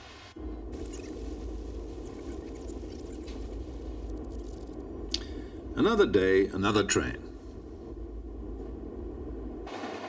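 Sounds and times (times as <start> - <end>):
train rumbling on rails: 4.8 - 10.0.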